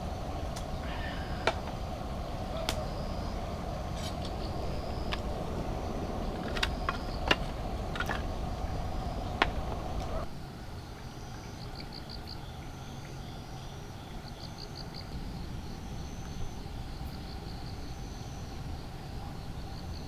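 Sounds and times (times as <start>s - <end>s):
high insect trills: 0.0s - 10.3s
steady low rumble: 0.0s - 10.3s
insects chirping: 0.0s - 20.0s.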